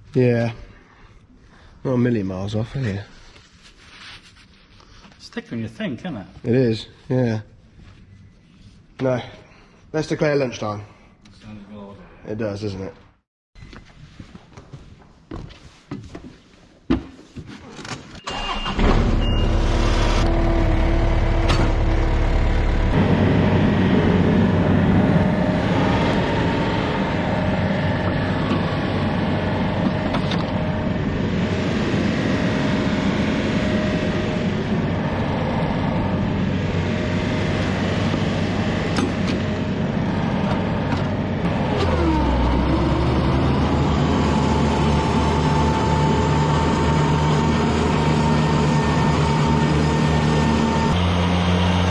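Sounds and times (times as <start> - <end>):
vehicle engine starting and running: 18.2 - 51.9.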